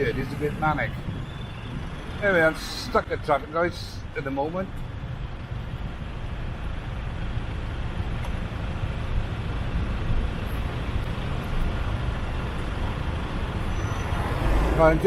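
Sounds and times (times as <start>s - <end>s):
idling engines: 0.0s - 15.0s
steady traffic noise: 0.0s - 15.0s.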